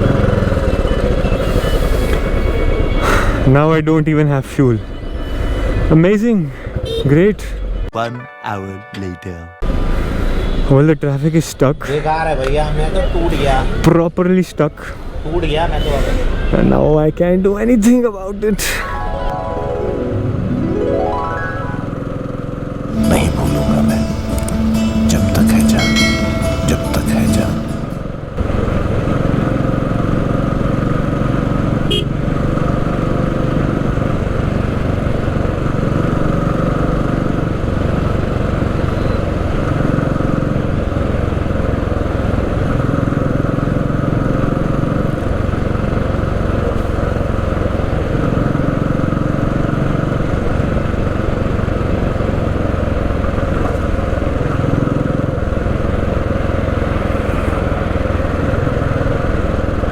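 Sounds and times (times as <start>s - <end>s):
motorcycle engine running: 0.0s - 1.3s, 21.9s - 23.0s, 27.6s - 59.9s.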